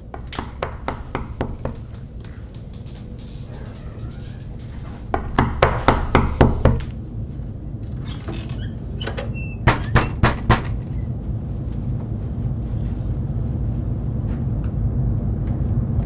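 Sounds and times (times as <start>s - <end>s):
rapid knocking on door: 0.0s - 2.6s, 3.5s - 6.9s, 9.6s - 10.8s
steady low hum: 0.0s - 16.0s.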